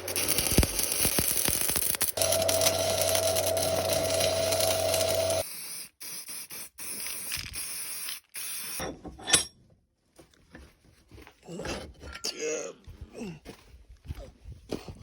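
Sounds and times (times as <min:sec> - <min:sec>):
electric power tool whining: 0:00.0 - 0:05.4.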